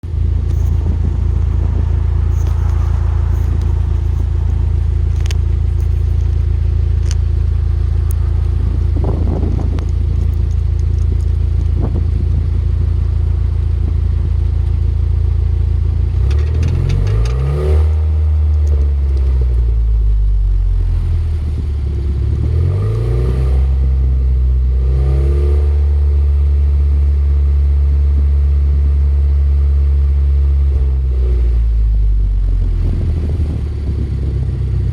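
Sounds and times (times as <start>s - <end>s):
car engine idling: 0.0s - 17.4s
engine revving: 16.1s - 19.7s, 21.8s - 26.4s.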